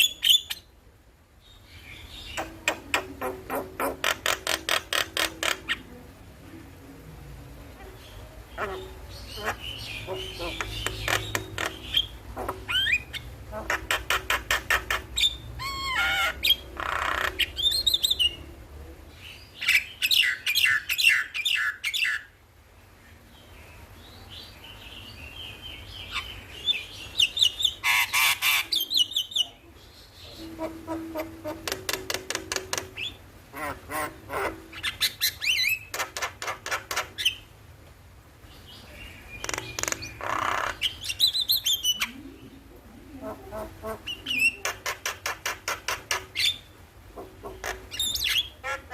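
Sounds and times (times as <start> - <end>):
myna calling and singing: 2.0 - 7.1, 7.8 - 18.5, 26.0 - 37.4, 38.7 - 48.9.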